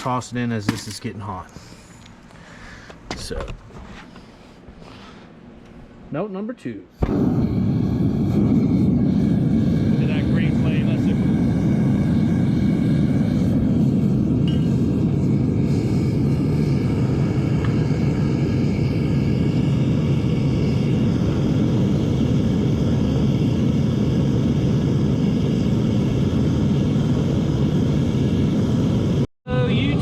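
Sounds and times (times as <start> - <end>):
furnace burner rushing: 7.0 - 30.0.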